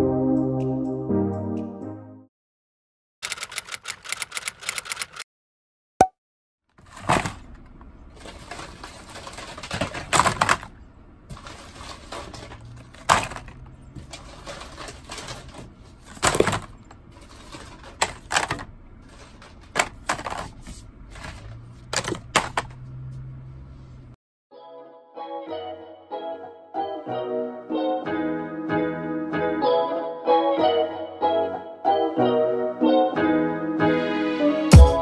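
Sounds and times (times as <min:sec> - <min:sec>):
blister packs rustling and crinkling: 0:06.8 - 0:22.1.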